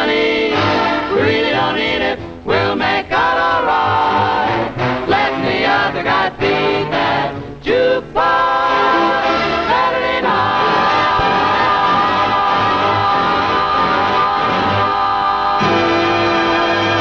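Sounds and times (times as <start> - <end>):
big-band swing music: 0.0 - 17.0
vocal group singing: 0.0 - 17.0.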